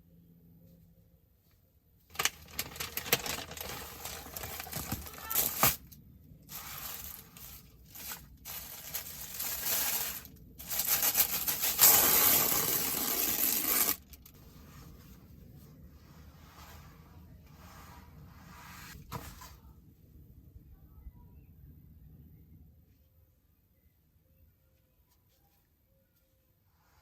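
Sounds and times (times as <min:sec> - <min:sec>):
packaging crinkling and tearing: 0:02.1 - 0:05.9, 0:06.5 - 0:14.3.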